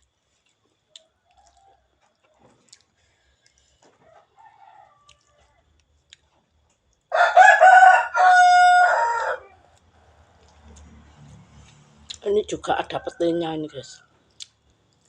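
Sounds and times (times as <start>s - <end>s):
faint chewing: 0.0s - 7.3s, 9.4s - 12.2s, 14.0s - 15.0s
rooster crowing: 4.0s - 5.7s, 7.1s - 9.8s.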